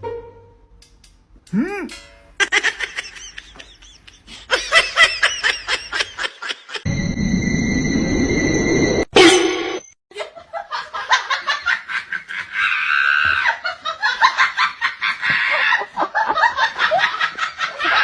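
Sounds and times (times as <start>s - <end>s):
person giggling: 1.5s - 6.8s.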